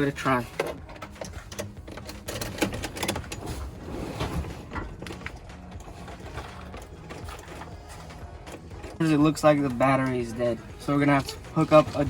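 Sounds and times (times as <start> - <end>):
car starter clicks and rattles: 0.0 - 3.8.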